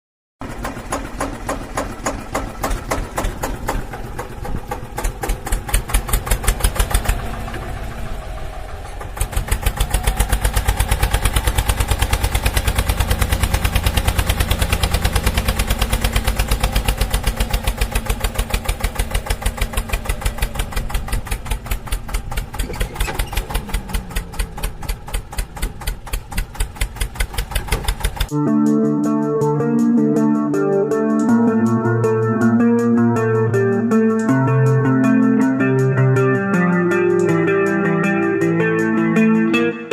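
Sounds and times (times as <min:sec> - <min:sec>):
tractor diesel engine running: 0:00.4 - 0:28.4.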